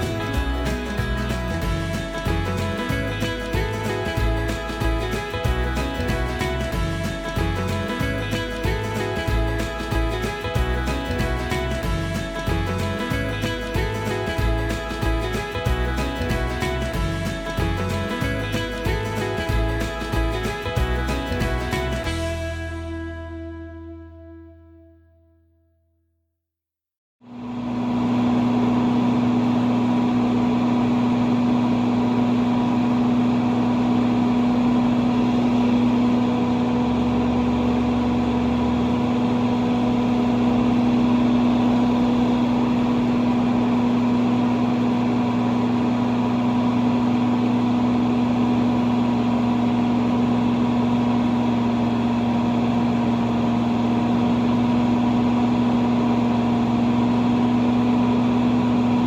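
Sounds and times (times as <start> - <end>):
tractor engine humming: 0.0 - 24.3.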